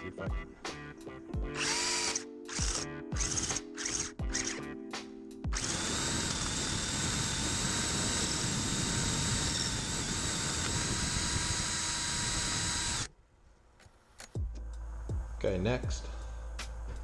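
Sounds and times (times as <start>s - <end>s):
electric drill boring through plastic: 1.6s - 4.6s, 5.5s - 13.1s.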